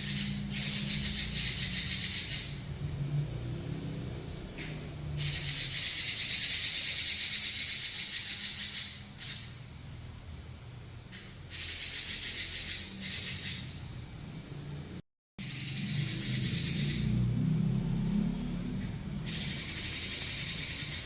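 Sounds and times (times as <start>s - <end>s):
bird singing rolling trill: 0.0s - 3.0s, 5.1s - 9.8s, 11.5s - 14.0s, 15.4s - 17.4s, 19.2s - 21.0s.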